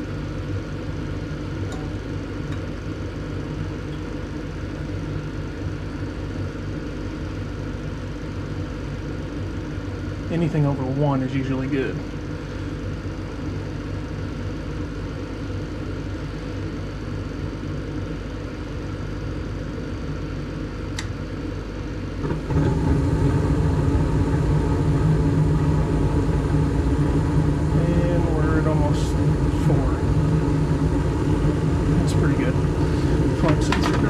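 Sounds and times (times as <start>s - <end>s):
furnace motor humming: 0.0s - 34.0s
gas furnace rumbling: 0.0s - 34.0s.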